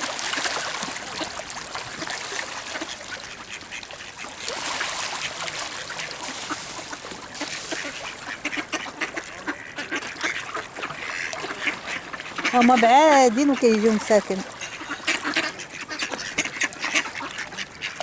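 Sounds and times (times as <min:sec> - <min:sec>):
ducks quacking: 0:05.1 - 0:18.0.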